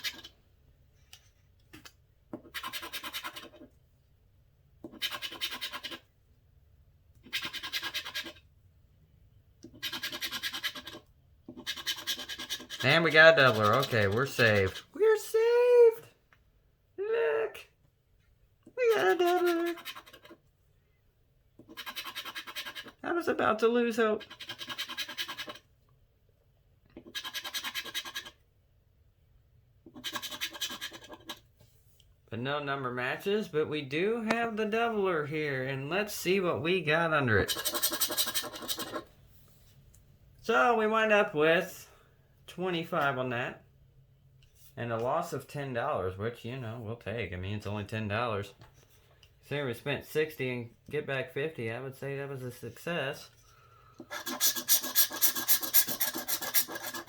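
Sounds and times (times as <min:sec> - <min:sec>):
scratching lottery ticket coating: 0:07.3 - 0:08.4, 0:09.7 - 0:14.9, 0:21.6 - 0:25.6, 0:37.4 - 0:39.0, 0:54.1 - 0:57.0.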